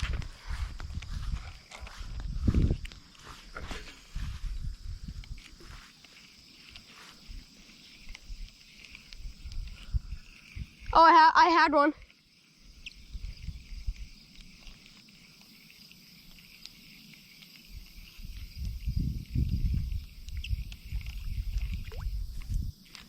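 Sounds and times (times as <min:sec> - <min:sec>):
low rumble on microphone: 0:00.0 - 0:02.9.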